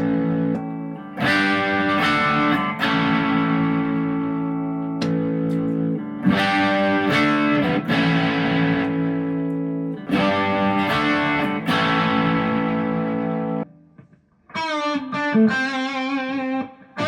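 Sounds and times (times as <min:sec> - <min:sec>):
electric guitar chords ringing: 0:00.0 - 0:17.0.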